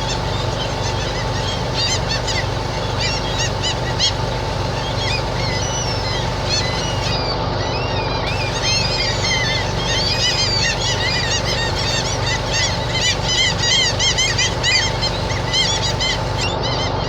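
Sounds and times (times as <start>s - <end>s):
flock of birds chirping: 0.0s - 7.2s, 8.3s - 16.6s
steady low hum: 0.0s - 7.2s, 8.2s - 16.6s.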